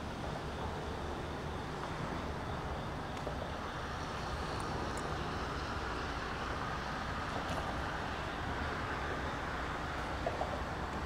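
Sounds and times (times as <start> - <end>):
low hum of diesel locomotives: 0.0 - 11.0
train wheels on rail: 0.0 - 11.0
faint high ticks: 4.5 - 5.1.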